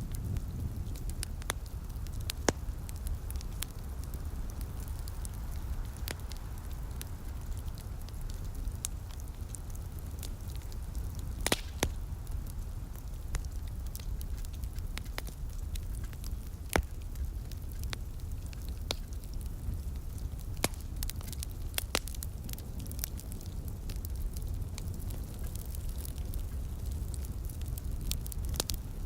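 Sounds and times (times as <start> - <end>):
wood fire crackling: 0.0 - 29.0
sharp pops: 11.4 - 12.0.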